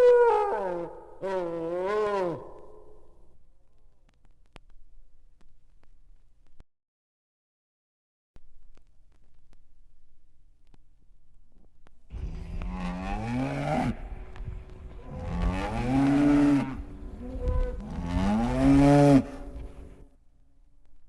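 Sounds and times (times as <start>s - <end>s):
long low animal calls: 0.0s - 3.1s, 15.0s - 19.9s.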